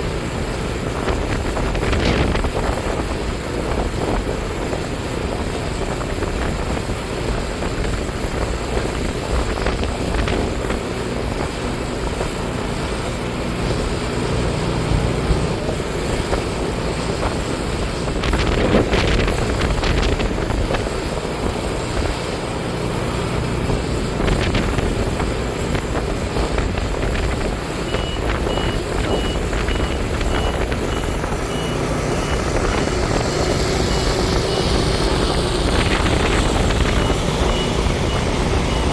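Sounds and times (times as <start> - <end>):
tractor running under load: 0.0 - 38.9
high electronic beeps: 27.9 - 38.9.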